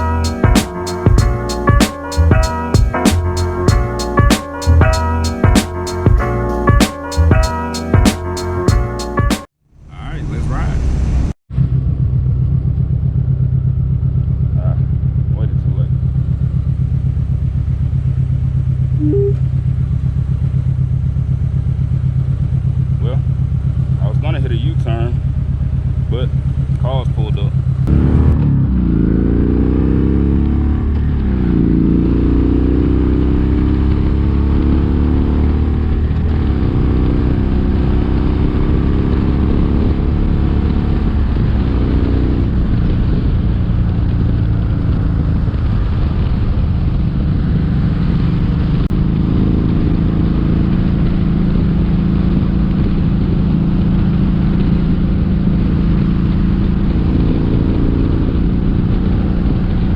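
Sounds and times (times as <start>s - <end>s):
motorcycle engine running: 11.6s - 32.9s, 35.7s - 59.9s.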